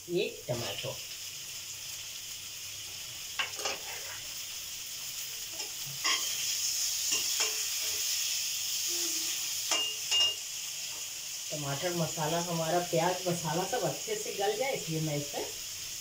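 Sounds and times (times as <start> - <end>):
onion and tomato sizzling: 0.0 - 16.0
spatula scraping and knocking pan: 3.4 - 4.3.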